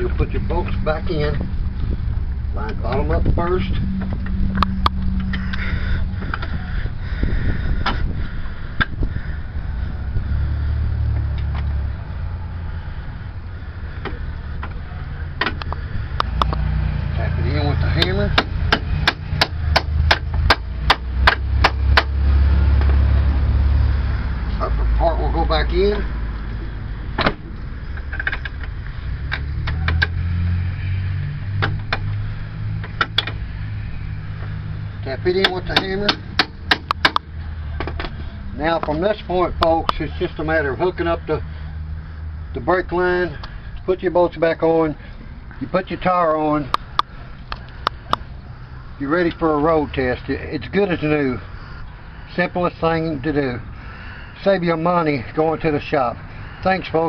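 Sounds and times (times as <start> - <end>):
steady low rumble: 0.0 - 30.8.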